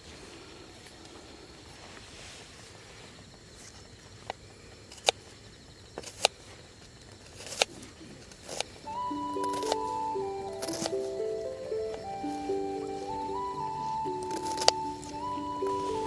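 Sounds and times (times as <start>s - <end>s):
faint outdoor background: 0.0s - 16.0s
music with plucked notes: 8.9s - 16.0s.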